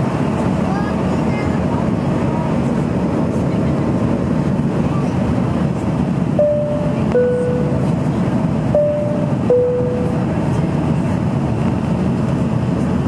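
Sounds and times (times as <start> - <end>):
cabin engine and air rumble: 0.0 - 13.0
two-tone cabin chime: 6.4 - 7.9, 8.7 - 10.3.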